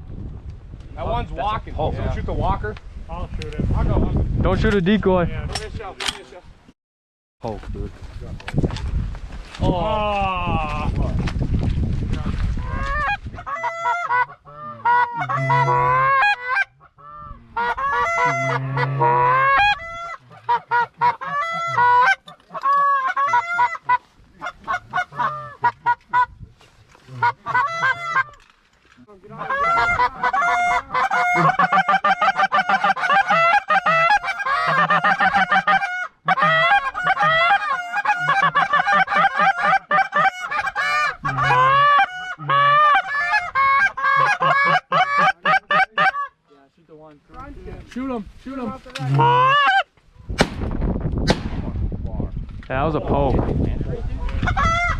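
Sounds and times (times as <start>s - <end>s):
geese honking: 12.6s - 26.3s, 27.1s - 28.4s, 29.3s - 46.4s, 48.6s - 49.9s.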